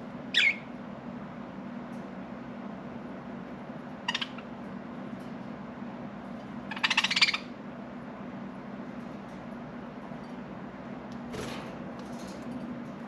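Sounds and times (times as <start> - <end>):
budgerigars chirping and chattering: 0.4 - 0.7, 4.0 - 4.5, 6.7 - 7.5.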